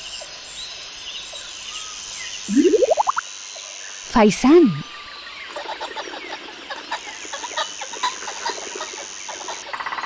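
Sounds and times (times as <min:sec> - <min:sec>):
steady high tone: 0:02.5 - 0:03.2
pheasants clucking and calling: 0:05.4 - 0:10.0.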